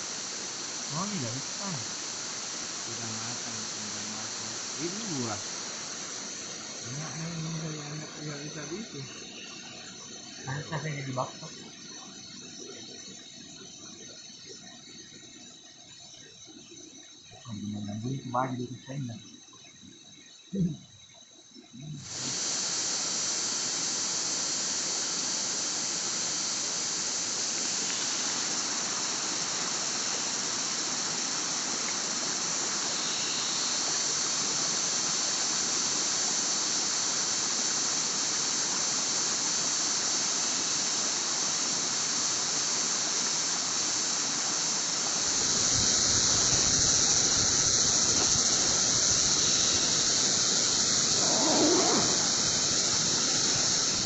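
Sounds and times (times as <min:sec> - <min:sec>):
rushing water: 0:00.0 - 0:08.9, 0:22.1 - 0:54.0.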